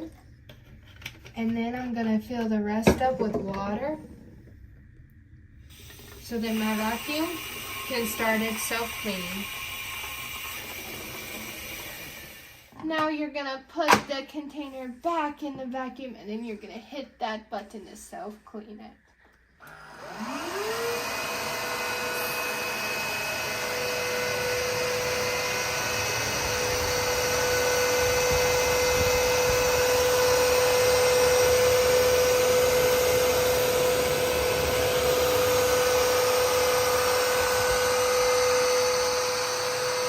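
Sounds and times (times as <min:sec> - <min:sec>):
vacuum motor whine: 0:05.7 - 0:12.7, 0:19.6 - 0:40.0.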